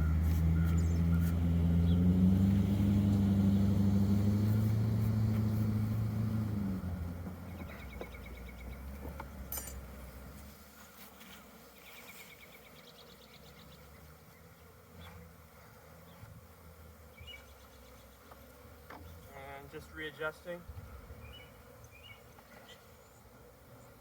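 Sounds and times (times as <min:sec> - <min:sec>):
honeybees buzzing: 0:00.0 - 0:24.0.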